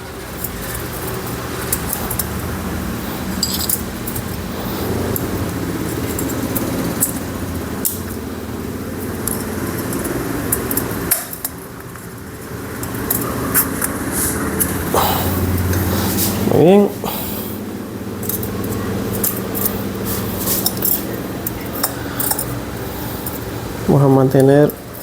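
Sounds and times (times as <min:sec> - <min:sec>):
vehicle engine drone: 0:00.0 - 0:25.0
metallic clinks and scrapes: 0:03.1 - 0:08.0, 0:18.2 - 0:23.8.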